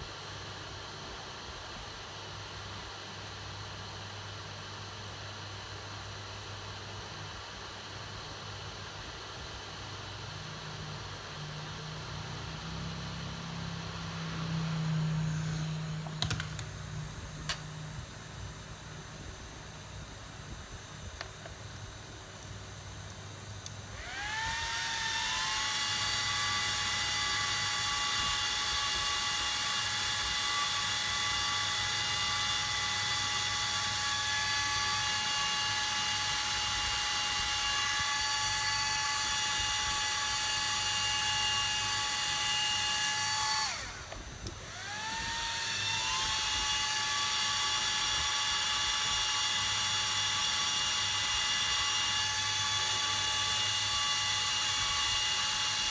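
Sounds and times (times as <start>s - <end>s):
hot-air blower whining: 0.0s - 55.9s.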